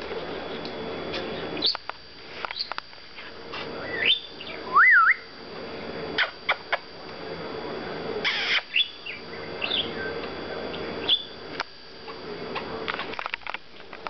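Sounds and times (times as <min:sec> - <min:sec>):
parakeet whistle: 0:03.8 - 0:05.3, 0:08.2 - 0:10.2, 0:11.0 - 0:11.4
parakeet chattering: 0:08.2 - 0:10.0.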